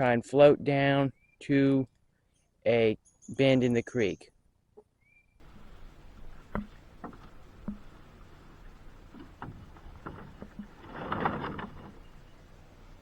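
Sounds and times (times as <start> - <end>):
splashing and scraping in water: 5.4 - 13.0.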